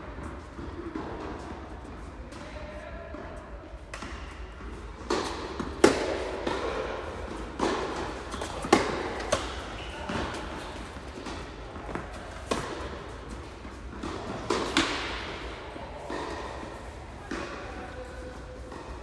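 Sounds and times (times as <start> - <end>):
tennis ball bouncing on court: 3.9 - 18.9
tennis ball struck by rackets: 5.0 - 16.6.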